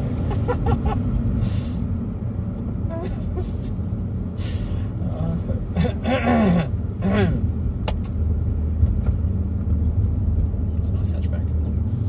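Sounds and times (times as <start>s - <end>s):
car engine droning: 0.0s - 12.0s
voice: 5.0s - 5.9s.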